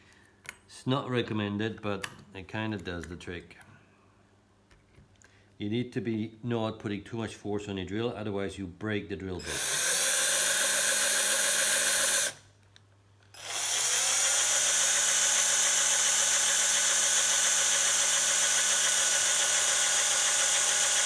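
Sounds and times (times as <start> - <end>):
small electric drill whining: 9.4 - 12.4, 13.3 - 21.0.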